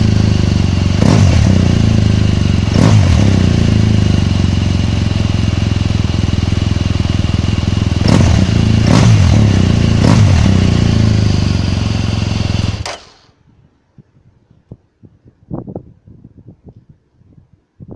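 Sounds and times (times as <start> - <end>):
motorcycle engine idling: 0.0 - 13.5.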